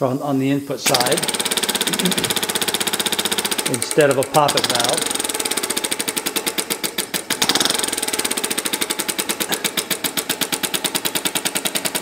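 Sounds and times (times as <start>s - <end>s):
model air engine chuffing: 0.8s - 12.0s.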